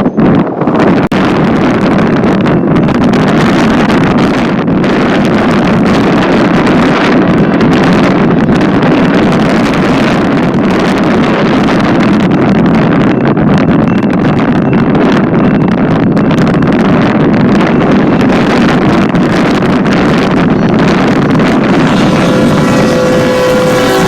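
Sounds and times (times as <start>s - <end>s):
wind buffeting microphone: 0.0s - 24.0s
freight train rumbling past: 14.3s - 24.0s.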